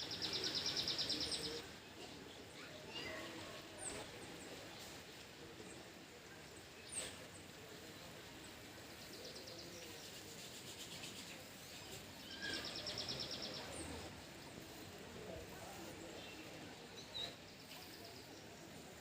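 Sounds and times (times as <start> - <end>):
birds chirping and trilling: 0.0 - 1.6, 11.0 - 14.0
outdoor background hiss: 0.0 - 19.0.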